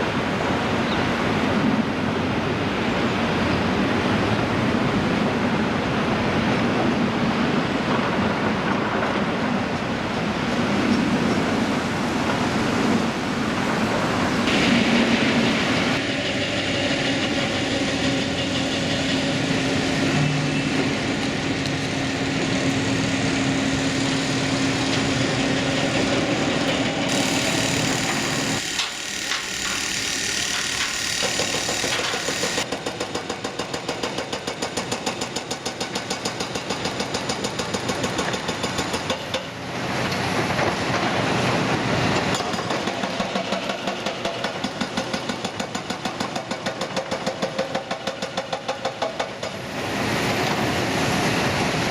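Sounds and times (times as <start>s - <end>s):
heavy machinery engine drone: 11.2s - 32.7s.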